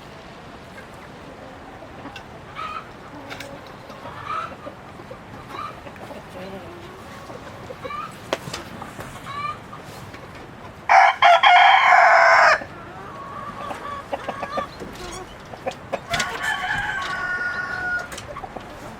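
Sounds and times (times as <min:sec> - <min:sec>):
hens clucking: 0:00.0 - 0:18.9
rooster crowing: 0:10.9 - 0:13.4, 0:16.1 - 0:18.2.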